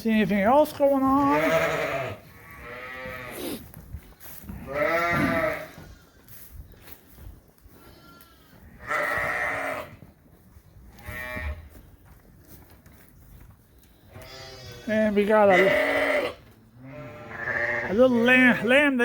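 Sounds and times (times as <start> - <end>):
sheep bleating loudly: 1.2 - 3.6, 4.6 - 6.2, 7.8 - 9.9, 14.2 - 19.0
faint high sheep bleat: 1.3 - 3.6, 4.7 - 6.2, 14.2 - 18.5.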